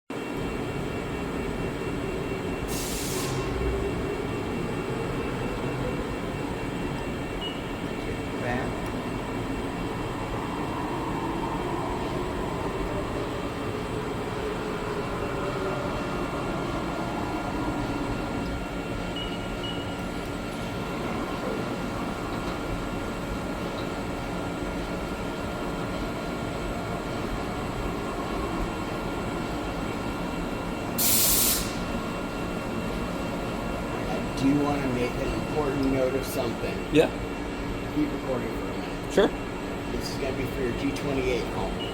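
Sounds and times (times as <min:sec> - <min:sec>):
factory machinery drone: 0:00.1 - 0:41.9
faint whining tones: 0:00.2 - 0:31.0
short hiss: 0:02.7 - 0:03.4, 0:31.0 - 0:31.8.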